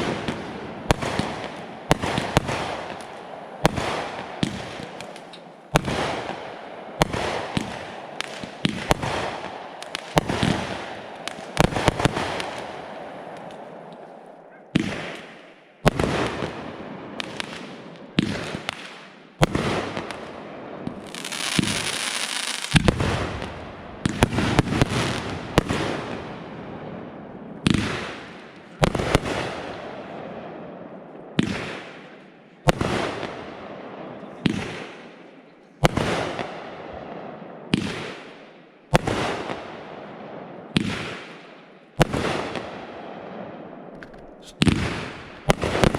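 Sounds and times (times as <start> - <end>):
fireworks bangs with crackle: 0.0 - 13.6, 14.7 - 26.5, 27.6 - 29.8, 31.4 - 33.5, 34.4 - 35.1, 35.8 - 36.8, 37.7 - 39.9, 40.7 - 45.9
hissing fireworks crackle: 0.0 - 26.4, 43.9 - 45.9.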